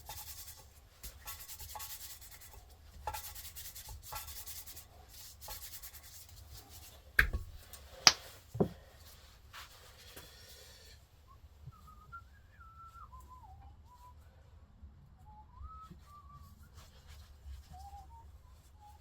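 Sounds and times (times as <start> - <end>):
hand rubbing strokes: 0.0 - 8.2
sharp knocks: 7.2 - 7.6.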